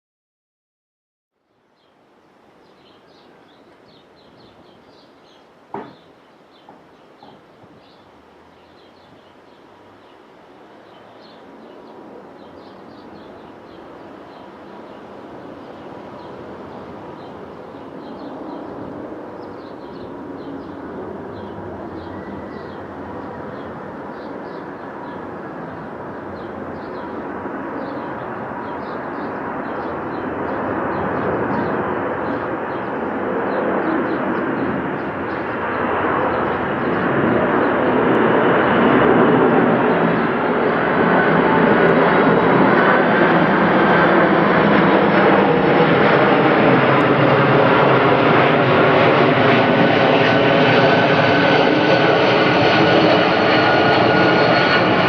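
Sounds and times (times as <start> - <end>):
birds chirping: 1.5 - 42.9
jet engine noise: 1.9 - 55.0
jet engine whine: 6.9 - 55.0.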